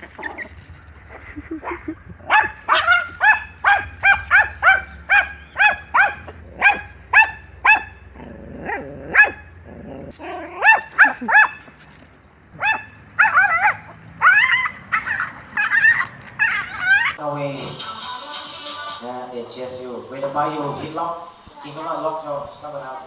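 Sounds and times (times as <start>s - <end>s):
animal high-pitched calls: 0.0s - 8.0s, 12.6s - 19.2s.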